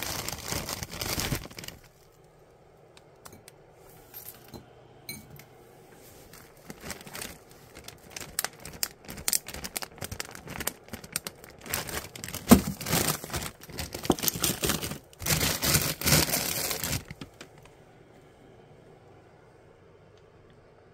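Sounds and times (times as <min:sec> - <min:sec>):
plastic packaging crinkling: 0:00.0 - 0:02.2, 0:06.1 - 0:17.7.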